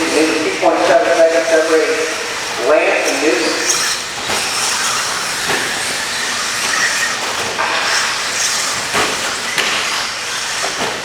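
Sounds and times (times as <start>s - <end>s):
faint motor whines: 0.0s - 11.0s
toy trucks motors hissing: 2.4s - 11.0s.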